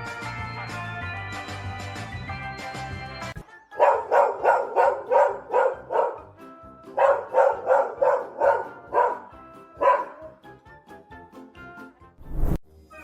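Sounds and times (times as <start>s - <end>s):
background music: 0.0s - 13.0s
dog barking: 3.8s - 6.3s, 7.0s - 10.4s.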